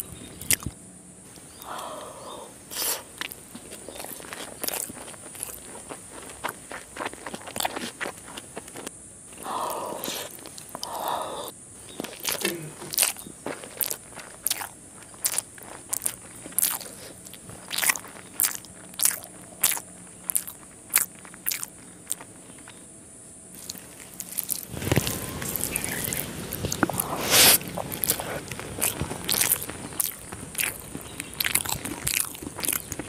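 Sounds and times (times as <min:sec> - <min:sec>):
wet chewing mouth clicks: 0:00.0 - 0:00.8, 0:01.5 - 0:22.8, 0:23.6 - 0:33.0
fingers squelching food on plate: 0:23.6 - 0:33.0.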